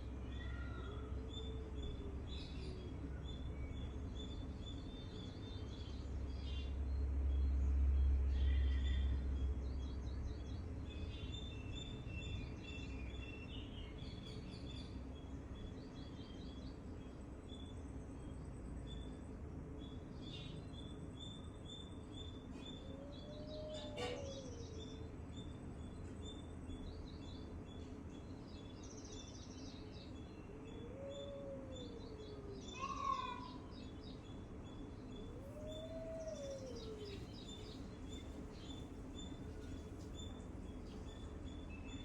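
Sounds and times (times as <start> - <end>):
small birds chirping: 18.9 - 42.0
low drawn-out bird call: 22.7 - 24.8, 35.2 - 39.8.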